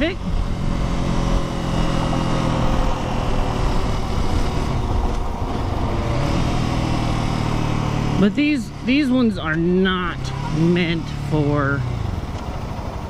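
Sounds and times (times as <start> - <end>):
wind noise: 0.0 - 8.1
motorcycle engine running: 0.0 - 13.0.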